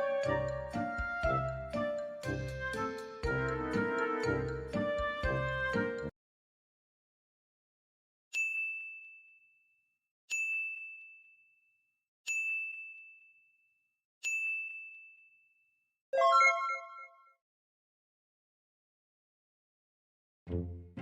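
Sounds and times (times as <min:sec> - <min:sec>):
high bell-like dings: 0:08.4 - 0:09.6, 0:10.3 - 0:11.6, 0:12.3 - 0:13.6, 0:14.2 - 0:15.6.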